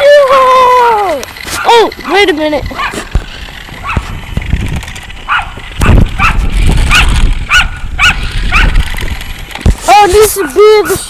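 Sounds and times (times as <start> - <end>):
dog barking: 2.8 - 3.0, 5.3 - 8.8.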